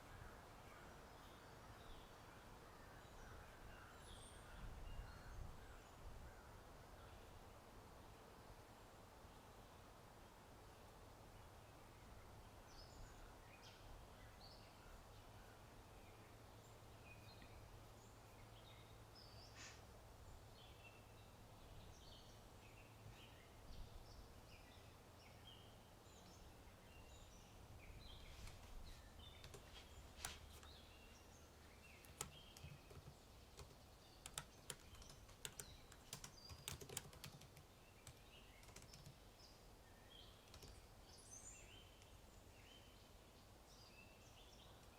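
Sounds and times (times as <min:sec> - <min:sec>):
faint birds chirping: 0:00.0 - 0:44.9
computer keyboard typing: 0:29.4 - 0:29.7, 0:32.0 - 0:39.2, 0:40.4 - 0:40.8.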